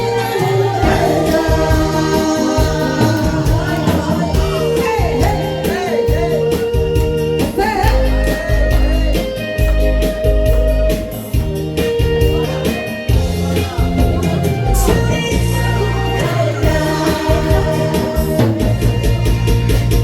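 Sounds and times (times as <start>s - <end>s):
person singing with vibrato: 0.0s - 9.8s, 13.6s - 19.3s
band backing track: 0.0s - 20.0s.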